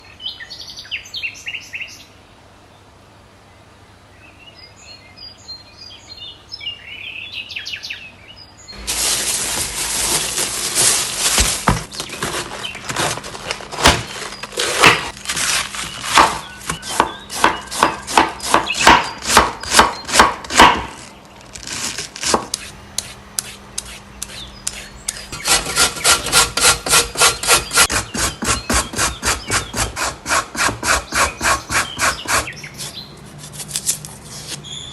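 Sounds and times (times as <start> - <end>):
vegetables scraped on a board: 8.8 - 34.6
faint birds chirping: 10.6 - 21.5, 22.8 - 26.4, 30.8 - 33.6, 34.2 - 34.9.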